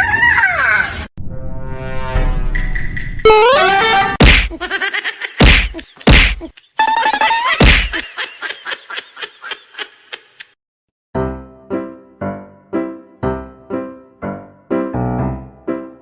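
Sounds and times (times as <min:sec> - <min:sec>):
loud whacks: 0:04.2 - 0:04.6, 0:05.4 - 0:06.5, 0:07.6 - 0:08.0.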